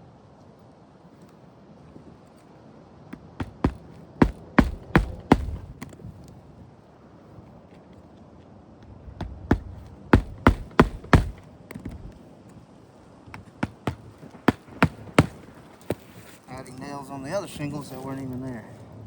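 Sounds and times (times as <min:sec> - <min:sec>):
hammer driving roofing nails: 0:03.2 - 0:06.0, 0:09.2 - 0:12.2, 0:13.4 - 0:16.0.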